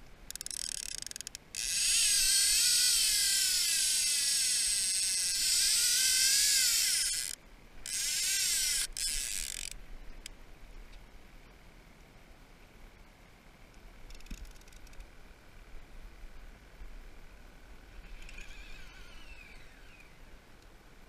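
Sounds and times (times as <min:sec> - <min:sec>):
fishing reel drag buzzing: 0:00.3 - 0:09.8, 0:18.1 - 0:20.2.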